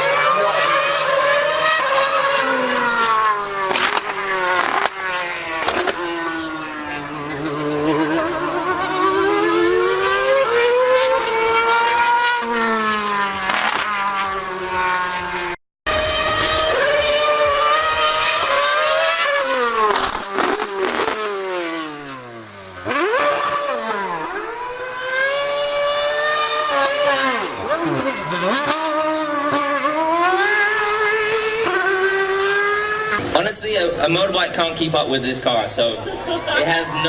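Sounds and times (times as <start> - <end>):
racing car engine at high revs: 0.0 - 37.0
sharp cracks: 3.6 - 6.1, 13.5 - 13.9, 19.9 - 21.3.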